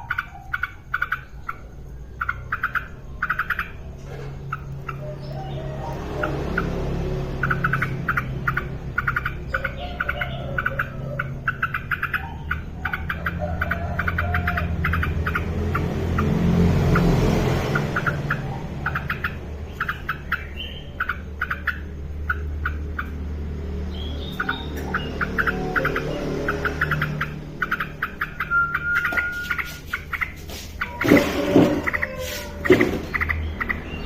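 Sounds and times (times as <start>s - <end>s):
bird chattering calls: 0.0s - 34.0s
rushing noise: 12.7s - 20.3s.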